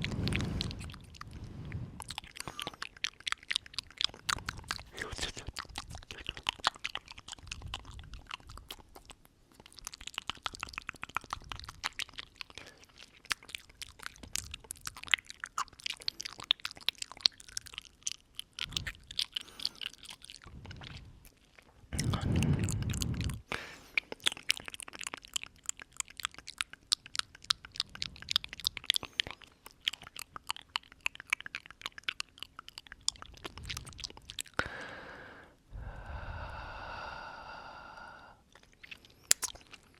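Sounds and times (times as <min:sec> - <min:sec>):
breath blown onto microphone: 0:00.0 - 0:02.7, 0:22.0 - 0:24.0, 0:34.6 - 0:38.4
wet mouth clicks and smacks: 0:00.0 - 0:34.9, 0:38.5 - 0:39.9.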